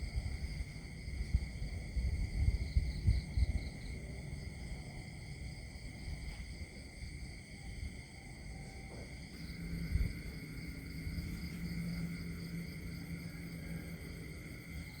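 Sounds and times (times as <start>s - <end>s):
low gusty rumble: 0.0s - 5.0s, 9.4s - 15.0s
high-pitched ringing chorus: 9.3s - 15.0s.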